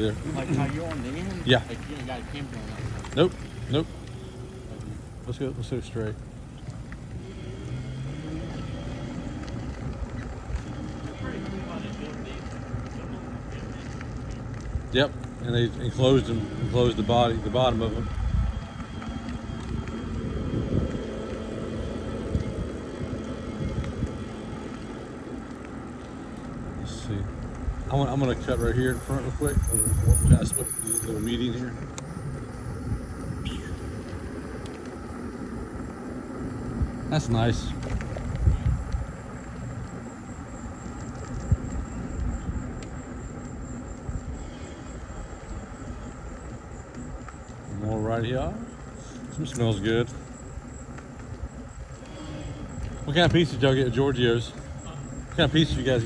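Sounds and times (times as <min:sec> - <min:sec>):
tyres rolling on pavement: 0:00.0 - 0:56.0
wind buffeting microphone: 0:00.0 - 0:56.0
faint ticks: 0:18.1 - 0:47.8.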